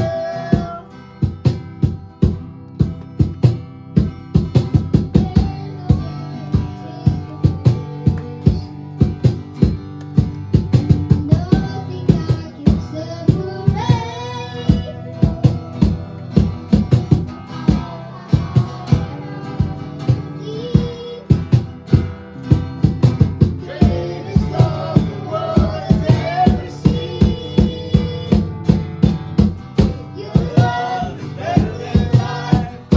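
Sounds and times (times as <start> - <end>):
person singing: 0.0 - 1.0, 5.1 - 9.1, 11.1 - 16.0, 17.5 - 21.5, 23.6 - 28.7, 30.0 - 32.9
drums beating: 0.0 - 32.9
strummed guitar: 0.0 - 32.9.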